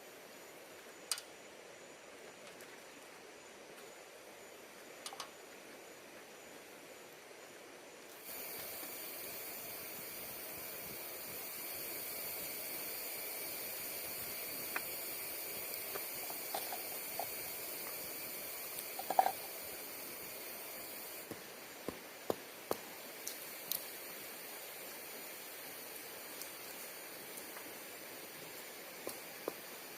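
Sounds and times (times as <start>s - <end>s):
high hiss: 8.1s - 29.9s.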